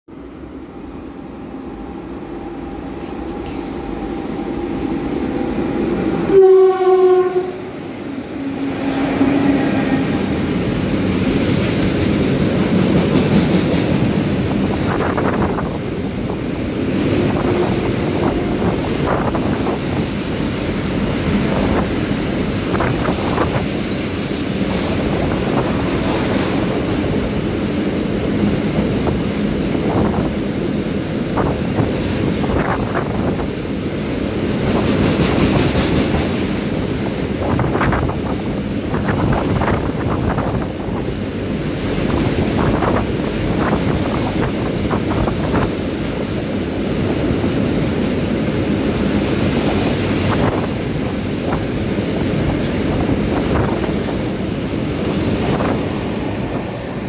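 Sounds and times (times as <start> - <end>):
locomotive horn blast: 6.1 - 7.8, 17.2 - 18.8.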